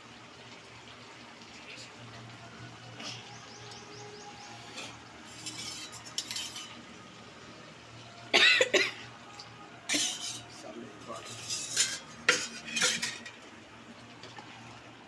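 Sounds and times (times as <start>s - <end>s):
metal spoon clattering in pot: 4.8s - 6.9s, 9.9s - 13.5s.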